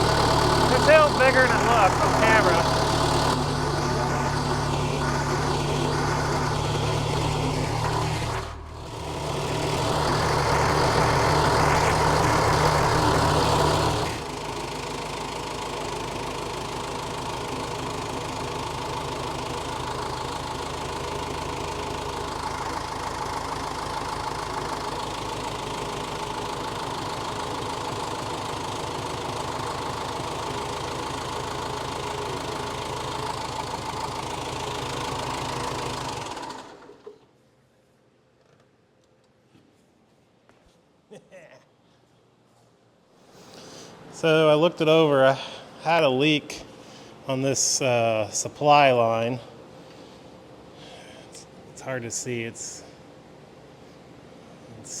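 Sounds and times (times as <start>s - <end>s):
skid steer diesel engine: 0.0s - 37.2s.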